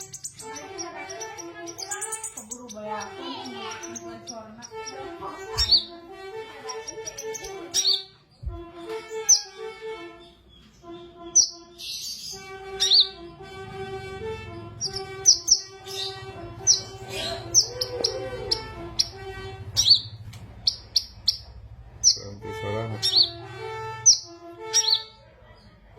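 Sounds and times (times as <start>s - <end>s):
sunbird high chirps: 0.0s - 5.0s.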